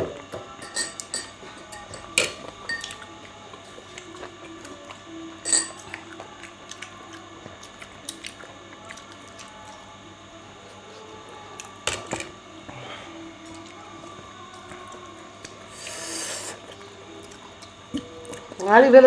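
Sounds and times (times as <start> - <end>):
person chewing: 5.8 - 9.8, 14.5 - 18.6.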